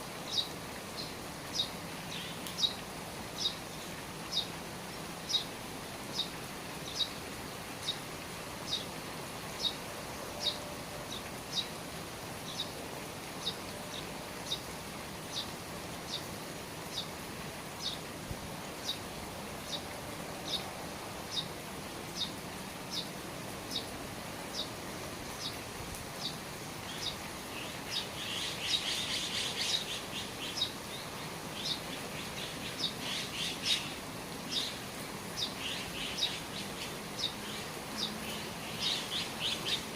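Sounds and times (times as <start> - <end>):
rain dripping from eaves: 0.0 - 39.9
birds twittering: 6.1 - 7.2, 16.1 - 16.3, 19.6 - 20.7, 23.7 - 24.7, 26.2 - 39.9.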